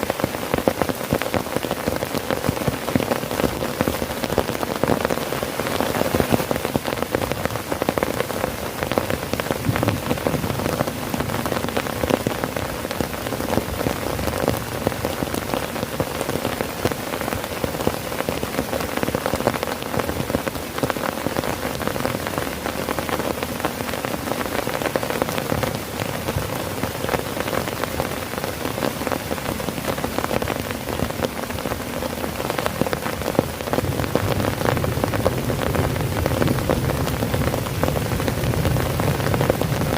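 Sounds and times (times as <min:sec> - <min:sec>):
heavy rain drumming on a tent: 0:00.0 - 0:39.9.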